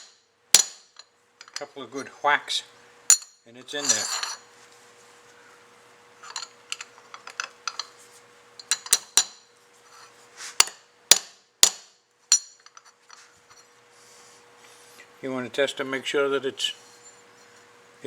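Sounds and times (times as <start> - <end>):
metal tools knocking on metal: 8.6 - 9.4.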